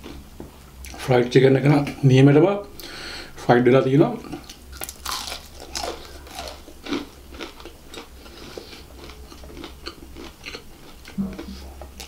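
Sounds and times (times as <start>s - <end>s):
crunchy chewing of fried chicken: 0.0s - 1.0s, 4.4s - 12.0s.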